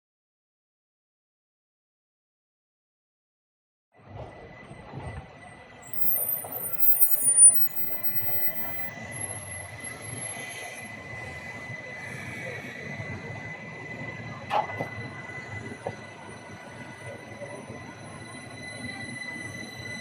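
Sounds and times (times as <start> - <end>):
tram rolling rumble: 4.0 - 20.0
tram wheel squeal: 4.0 - 20.0
constant high whine: 4.3 - 20.0.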